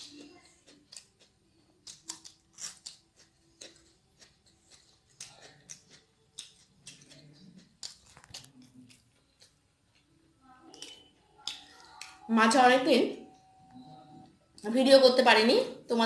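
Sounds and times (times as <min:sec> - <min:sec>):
person chewing crunchy food: 0:00.0 - 0:10.2.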